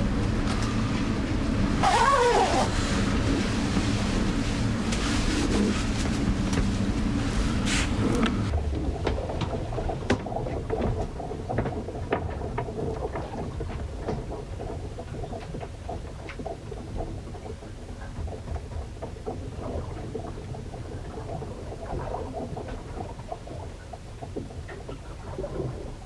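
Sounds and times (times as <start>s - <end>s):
rain and spray patter: 0.0s - 10.1s
low rumble of wind and water: 0.0s - 26.0s.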